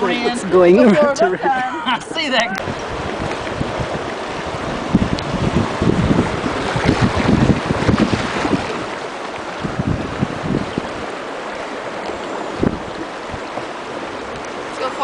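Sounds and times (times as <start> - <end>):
river rapids rushing and splashing: 0.0 - 15.0
wind buffeting microphone: 0.0 - 15.0.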